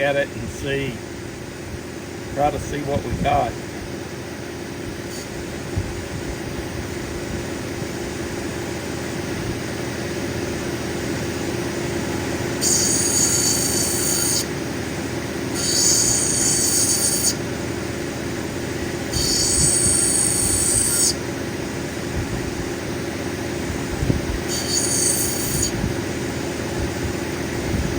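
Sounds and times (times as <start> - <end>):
high-pitched grinding screech: 5.1 - 5.4, 12.6 - 14.5, 15.5 - 17.4, 19.1 - 21.2, 24.5 - 25.8
grinding wheel running: 10.7 - 22.5, 23.6 - 27.9.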